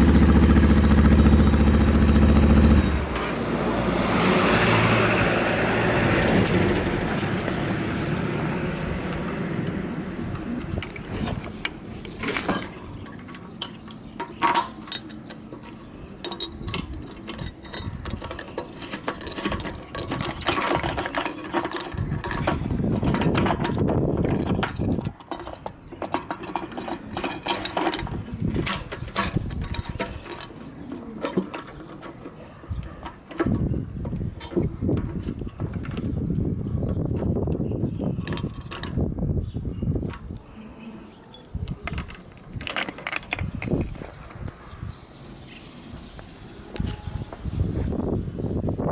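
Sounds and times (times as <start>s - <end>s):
motorcycle engine: 0.0s - 10.5s.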